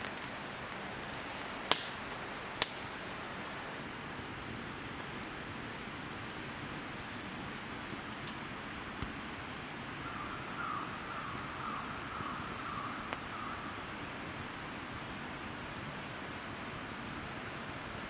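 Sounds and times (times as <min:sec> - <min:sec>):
hissing outdoor background noise: 0:00.0 - 0:18.0
light ticks: 0:08.1 - 0:09.4.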